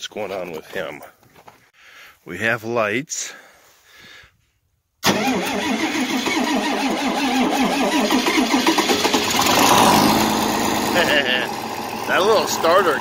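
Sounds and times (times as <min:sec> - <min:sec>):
tractor starter cranking engine: 0:05.0 - 0:13.0.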